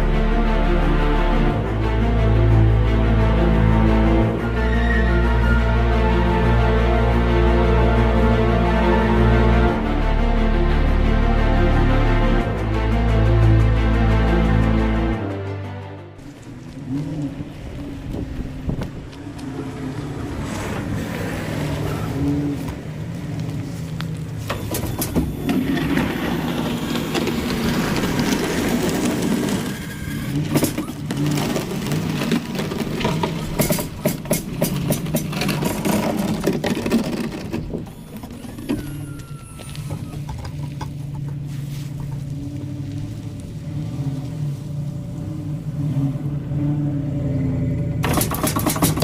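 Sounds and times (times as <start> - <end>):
vehicle engine running: 16.2 - 49.0
scraping and clattering: 24.3 - 43.1, 48.0 - 49.0.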